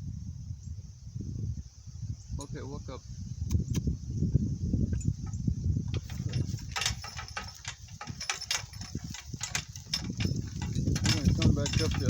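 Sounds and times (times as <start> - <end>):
cart clicks and rattles: 5.0 - 12.0
cart rumbling over rough ground: 5.0 - 12.0.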